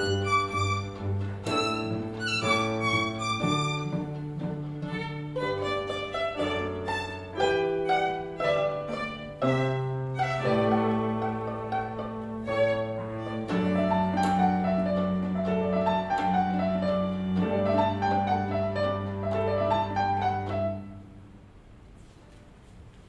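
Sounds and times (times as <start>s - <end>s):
violin melody: 0.0s - 21.2s
held cello notes: 0.0s - 21.6s
piano playing: 0.0s - 21.6s.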